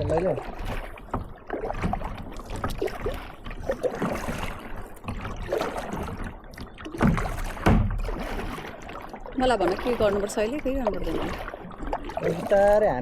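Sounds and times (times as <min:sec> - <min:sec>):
paddle splashing and dripping: 0:00.0 - 0:13.0
low thump: 0:07.0 - 0:08.2.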